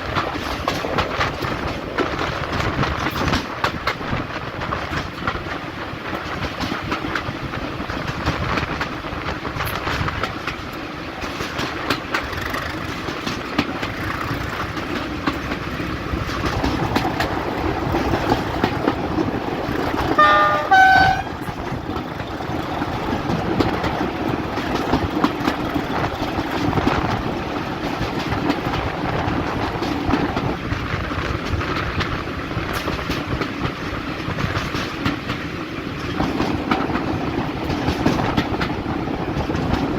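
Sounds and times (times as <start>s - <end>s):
train wheels clicking over rail joints: 0.0s - 39.9s
two-note train horn blast: 20.2s - 21.4s.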